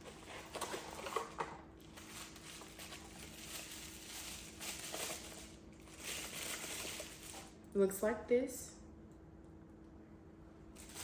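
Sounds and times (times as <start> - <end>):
packaging rustling and crinkling: 0.0 - 7.6, 10.8 - 11.0
low steady hum: 0.0 - 11.0.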